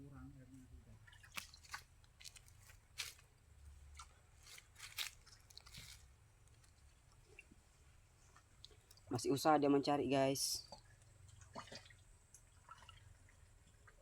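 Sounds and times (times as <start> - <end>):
hands squelching in mud and water: 1.1 - 6.8.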